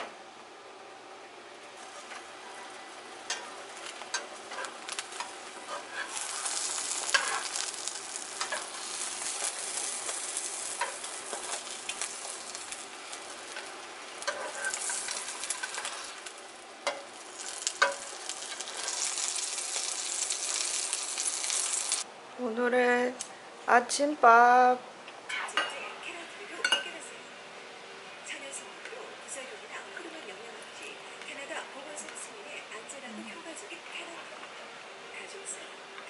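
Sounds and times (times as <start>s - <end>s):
egg sizzling in a frying pan: 1.7s - 22.1s
spatulas scraping and tapping pan: 3.2s - 19.4s.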